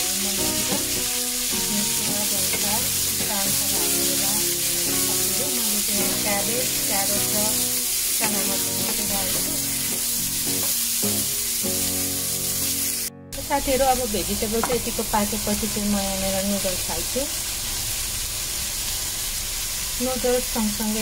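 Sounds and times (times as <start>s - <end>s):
background music: 0.0s - 15.9s
vegetables sizzling in a wok: 0.0s - 21.0s.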